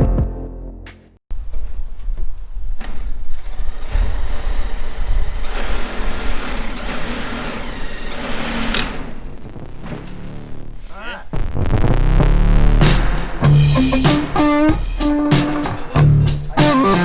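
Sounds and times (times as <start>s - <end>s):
motor running: 3.7s - 9.2s.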